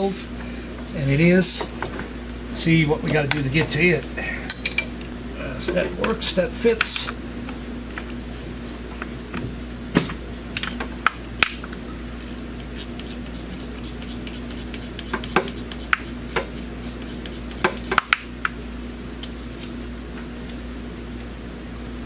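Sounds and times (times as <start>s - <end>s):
ratchet wrench clicking: 12.2s - 18.2s.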